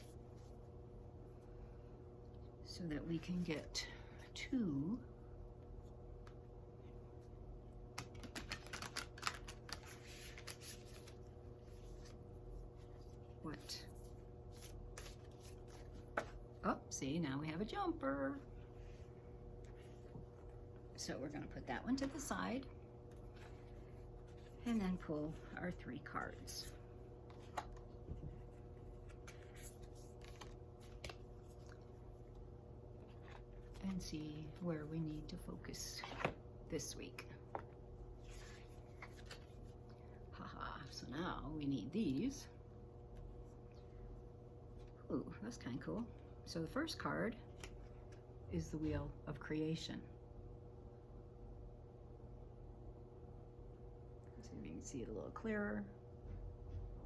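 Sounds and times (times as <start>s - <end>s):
steady low hum: 0.0s - 57.0s
cards tapping and rustling: 7.9s - 11.2s
cards being shuffled: 7.9s - 13.2s, 13.8s - 16.5s, 26.6s - 32.4s, 37.5s - 39.7s
cards sliding rustle: 8.0s - 13.2s, 14.0s - 16.4s, 28.4s - 31.8s, 38.2s - 39.7s.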